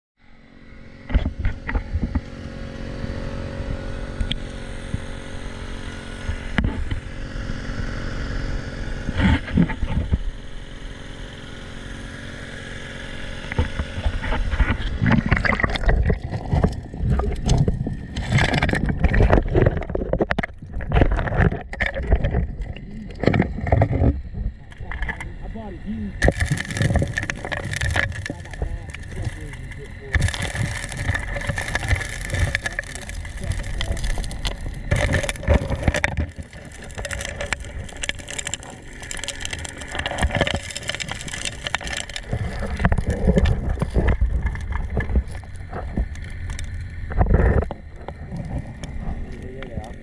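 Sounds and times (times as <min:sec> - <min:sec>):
small engine running: 0:00.4 - 0:15.2
water gurgling: 0:11.7 - 0:50.0.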